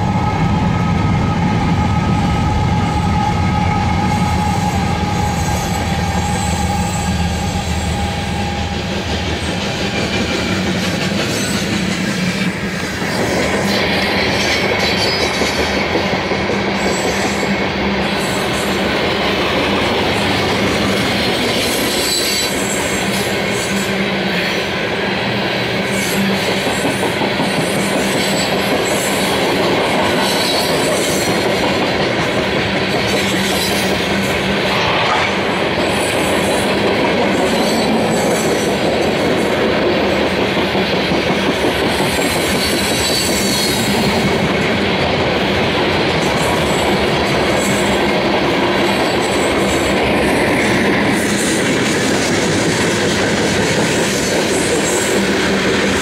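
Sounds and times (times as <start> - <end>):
high wheel squeal: 0.0 - 9.2
freight train wheels rumbling: 0.0 - 56.0.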